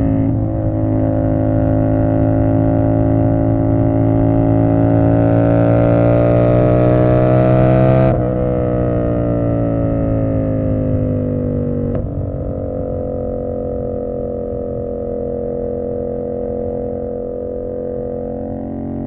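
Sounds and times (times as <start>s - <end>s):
motorcycle engine idling: 0.0s - 5.2s, 9.4s - 19.0s
motorcycle engine revving down: 0.0s - 19.0s.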